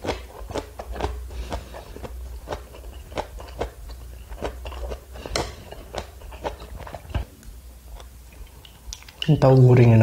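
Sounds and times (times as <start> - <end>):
person chewing with wet smacks: 0.0 - 9.9.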